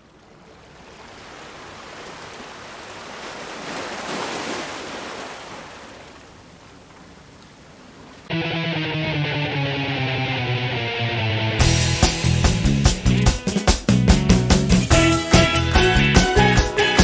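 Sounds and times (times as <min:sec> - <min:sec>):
surf washing on rocky shore: 0:00.0 - 0:08.3.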